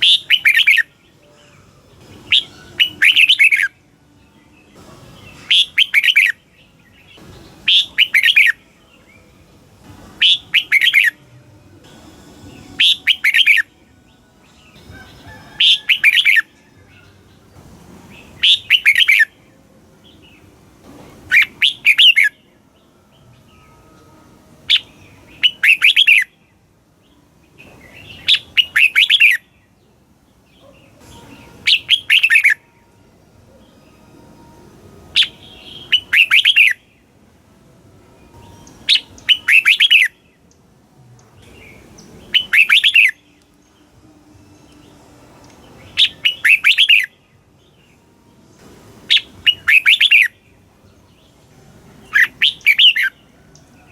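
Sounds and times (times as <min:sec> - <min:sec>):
bulbul singing bright phrases: 0:00.0 - 0:53.9.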